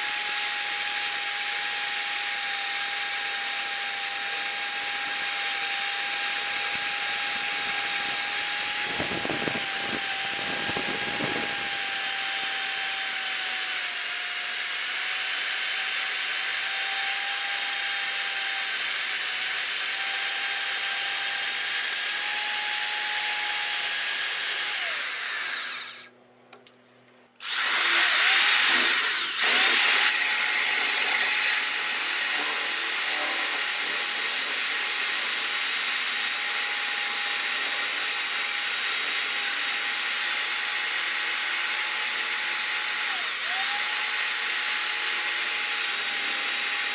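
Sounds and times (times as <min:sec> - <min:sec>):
power tool high whine: 0:00.0 - 0:26.1, 0:27.4 - 0:46.9.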